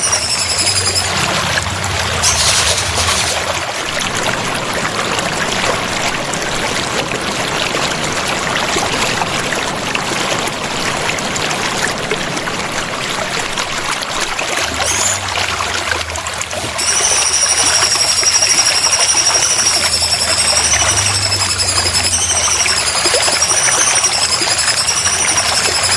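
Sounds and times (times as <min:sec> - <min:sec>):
high wavering tone: 0:00.0 - 0:03.6, 0:14.8 - 0:15.5, 0:16.6 - 0:25.9
water trickling and splashing: 0:00.0 - 0:25.9.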